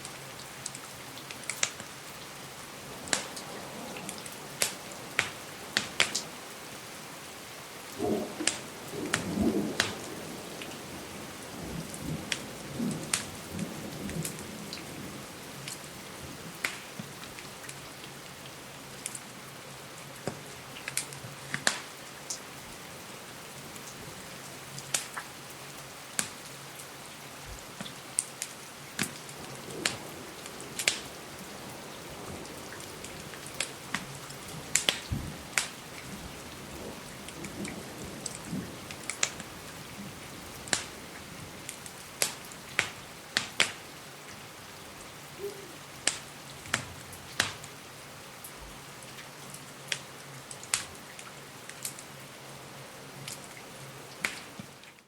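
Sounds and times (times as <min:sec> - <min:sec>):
steady rain hiss: 0:00.0 - 0:55.0
wood fire crackling and popping: 0:00.6 - 0:02.0, 0:03.0 - 0:06.3, 0:07.9 - 0:10.7, 0:12.2 - 0:14.4, 0:16.6 - 0:17.8, 0:20.2 - 0:22.4, 0:24.8 - 0:25.3, 0:26.2 - 0:26.5, 0:27.7 - 0:31.2, 0:32.8 - 0:39.5, 0:40.1 - 0:43.8, 0:46.0 - 0:47.7, 0:49.9 - 0:52.0, 0:54.2 - 0:54.6.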